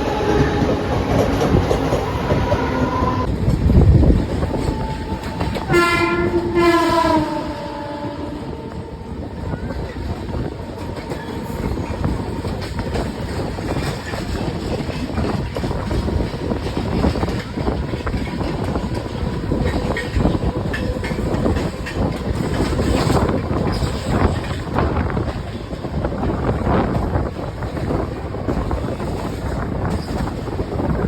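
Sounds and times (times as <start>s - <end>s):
train rumbling along track: 0.0s - 31.0s
wheels clicking over rail joints: 9.4s - 31.0s.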